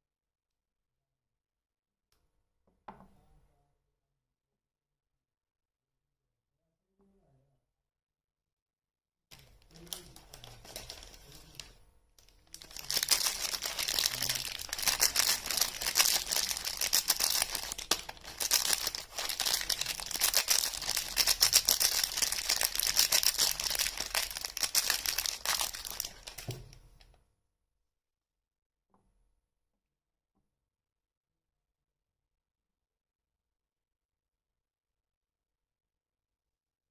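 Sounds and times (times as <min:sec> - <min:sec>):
soap wrapper crinkling and tearing: 0:09.3 - 0:27.2.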